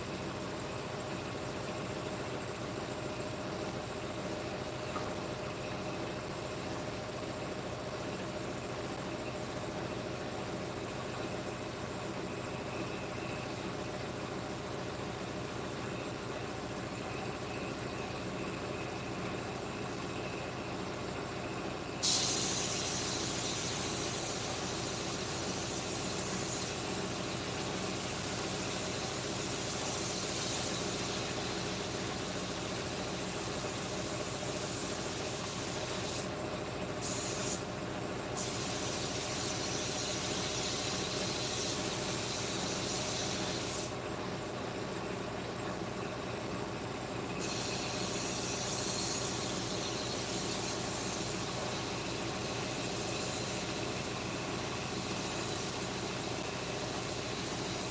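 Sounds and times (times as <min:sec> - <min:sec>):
workshop machine humming: 0:00.0 - 0:57.9
hiss: 0:22.0 - 0:36.4, 0:37.0 - 0:37.7, 0:38.3 - 0:44.0, 0:47.4 - 0:57.9.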